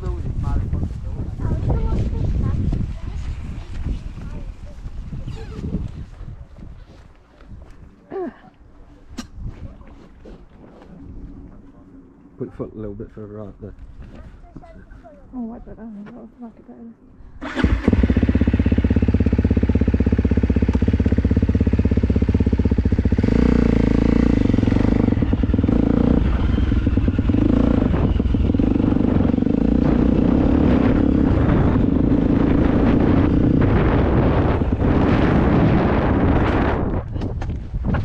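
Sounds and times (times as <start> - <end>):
dirt bike engine revving: 17.4 - 37.0.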